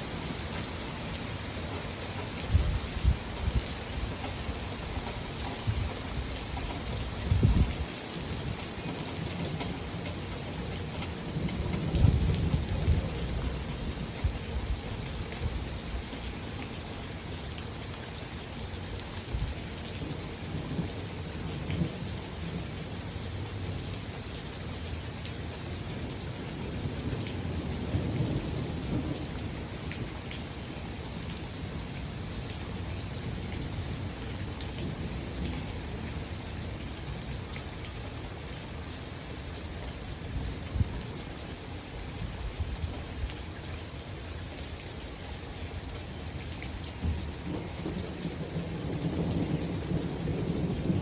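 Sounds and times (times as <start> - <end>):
rain falling: 0.0 - 51.0
rolling thunder: 5.0 - 10.0, 10.9 - 14.4, 47.0 - 51.0.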